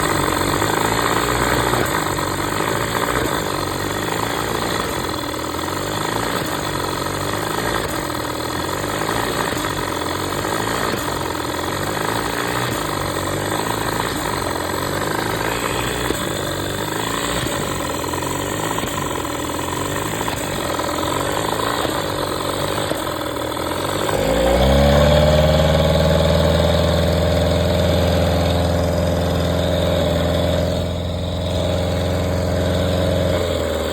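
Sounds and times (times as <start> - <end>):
outboard motor running: 0.0 - 33.9.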